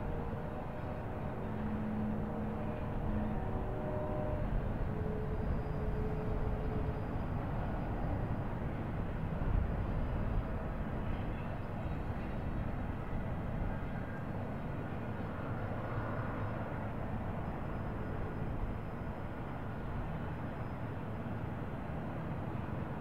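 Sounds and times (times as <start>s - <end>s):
freight train rumbling: 0.0s - 23.0s.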